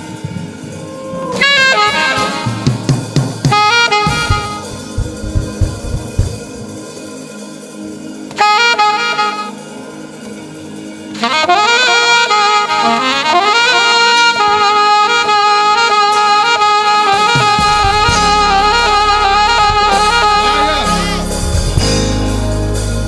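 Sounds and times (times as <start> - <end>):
saxophone melody: 0.0 - 6.8, 8.3 - 23.0
soft keyboard chord: 1.8 - 7.3, 8.3 - 23.0
low bass: 4.1 - 6.6, 17.4 - 23.0.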